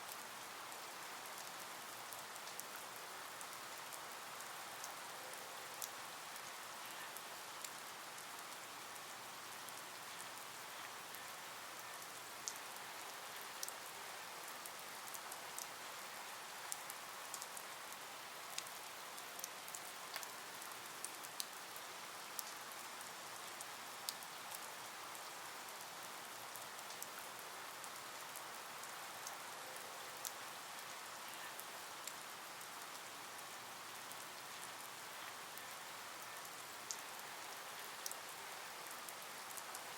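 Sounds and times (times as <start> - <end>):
faint rain hiss: 0.0 - 39.9.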